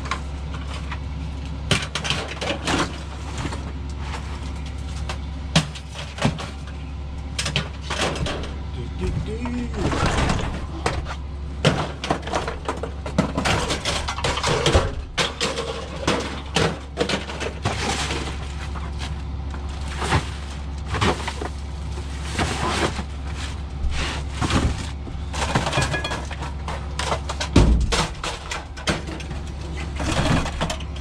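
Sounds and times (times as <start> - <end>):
steady low hum: 0.0 - 31.0
knocks and clattering: 9.7 - 18.4.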